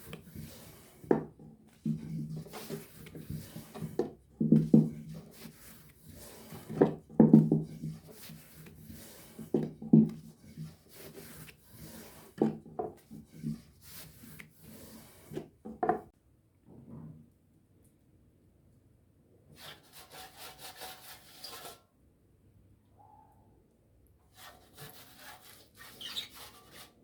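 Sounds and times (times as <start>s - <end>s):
rolling pin rubbing on wooden board: 0.0s - 16.1s.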